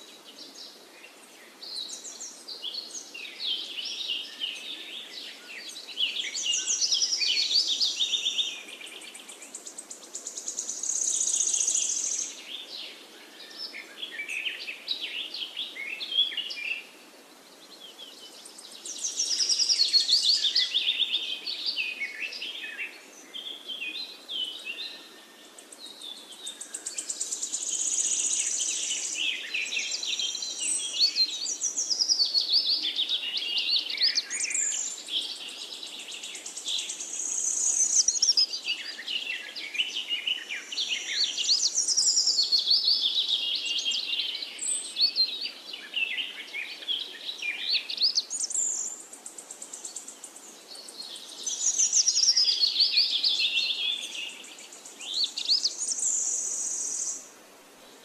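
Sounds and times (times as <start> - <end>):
songbird chirps and whistles: 18.0 - 49.0.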